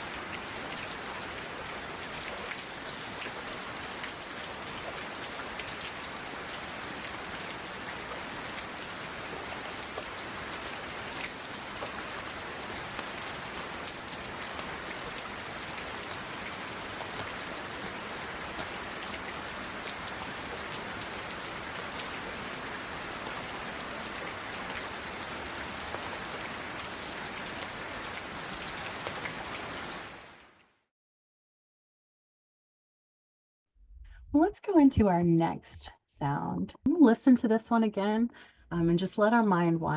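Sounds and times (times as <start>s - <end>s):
steady rain falling: 0.0s - 30.7s.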